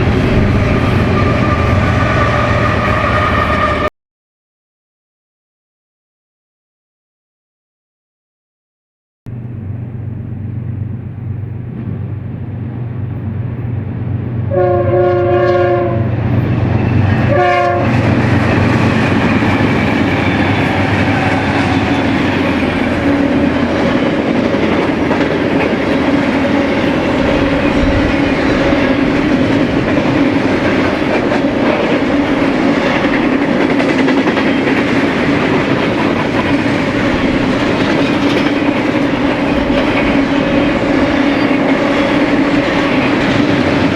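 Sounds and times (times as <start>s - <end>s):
locomotive engine humming: 0.0s - 3.9s, 9.3s - 43.9s
train air horn blasts: 0.0s - 3.9s, 14.5s - 16.1s, 17.2s - 23.4s
train wheels clattering on rails: 0.0s - 3.9s, 16.0s - 43.9s.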